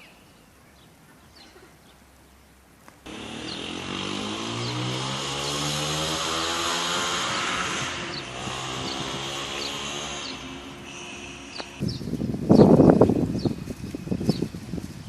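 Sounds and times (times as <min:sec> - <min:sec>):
birds chirping: 0:00.0 - 0:14.8
motor engine running: 0:03.1 - 0:11.8.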